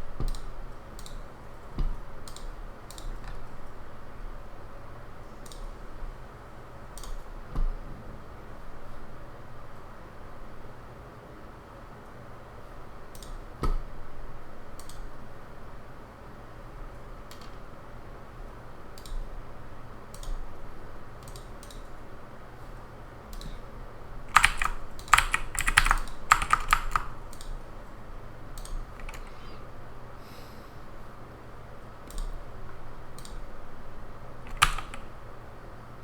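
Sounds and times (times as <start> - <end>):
typing on computer keyboard: 0.2 - 3.5, 7.0 - 7.3, 13.1 - 13.5, 14.8 - 15.1, 20.1 - 20.5, 21.2 - 21.9, 24.3 - 27.6, 28.6 - 29.4, 33.1 - 33.5, 34.4 - 35.2.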